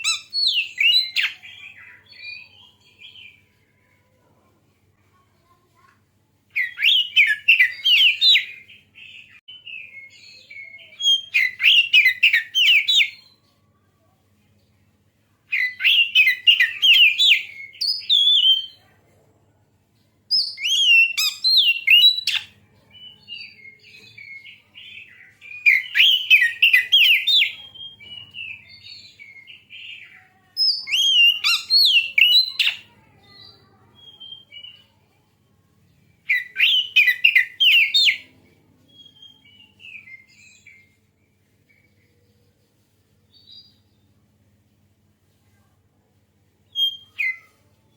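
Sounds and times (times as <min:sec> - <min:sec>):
bird singing whistled phrases: 0:00.0 - 0:03.3, 0:06.6 - 0:13.4, 0:15.5 - 0:18.8, 0:20.3 - 0:32.8, 0:34.0 - 0:34.8, 0:36.3 - 0:38.2, 0:46.7 - 0:47.5.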